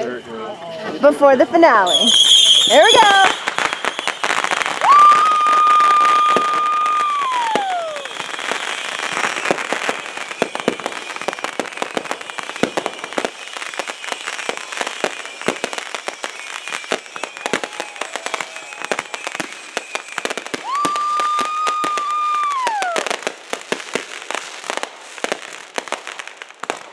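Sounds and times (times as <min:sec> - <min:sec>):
fireworks crackling and banging: 0:00.0 - 0:26.9
firework whistle: 0:01.8 - 0:23.3.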